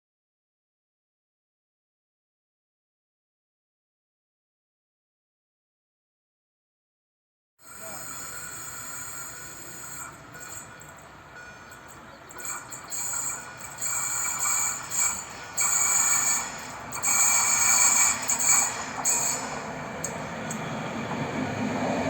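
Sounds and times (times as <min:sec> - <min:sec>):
train approaching: 0:07.6 - 0:22.0
high-pitched ringing hiss: 0:07.7 - 0:20.2.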